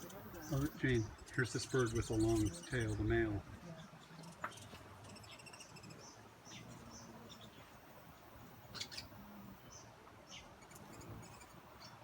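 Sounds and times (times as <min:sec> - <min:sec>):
hummingbird squeaky chirps: 0:00.0 - 0:03.1, 0:08.7 - 0:09.1, 0:10.3 - 0:12.0
quiet background hiss: 0:00.0 - 0:12.0.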